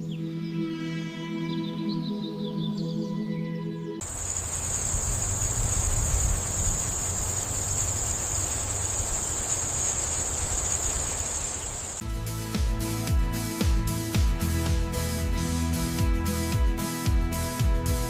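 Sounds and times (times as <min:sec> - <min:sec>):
crickets trilling: 0:04.0 - 0:12.0.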